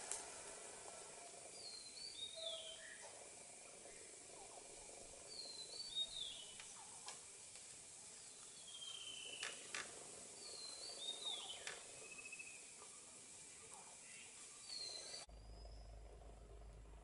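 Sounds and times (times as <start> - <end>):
whistled bird calls: 1.4 - 3.2, 5.3 - 7.1, 8.2 - 9.7, 10.4 - 12.9, 13.8 - 16.0.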